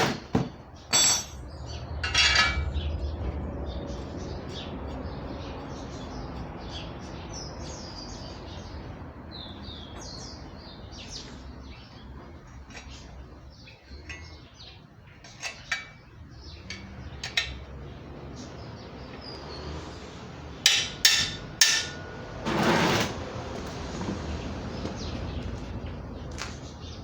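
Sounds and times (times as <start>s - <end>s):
small birds chirping: 0.8s - 20.3s, 24.3s - 27.0s
sharp metallic clanks: 0.9s - 2.9s, 20.6s - 23.2s
low steady rumble: 1.2s - 5.6s.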